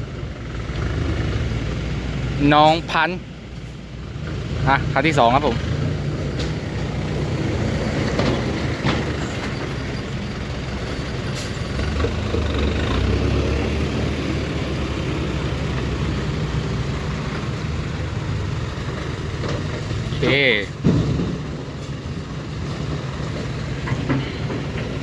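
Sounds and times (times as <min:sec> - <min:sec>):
diesel truck engine rumbling: 0:00.0 - 0:25.0
sharp knocks: 0:20.8 - 0:21.8.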